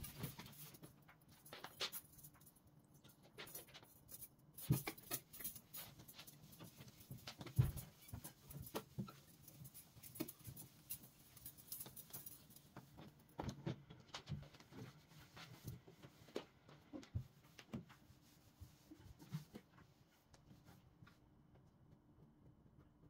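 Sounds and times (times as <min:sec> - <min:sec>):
household items clicking and tapping: 0:00.0 - 0:17.9.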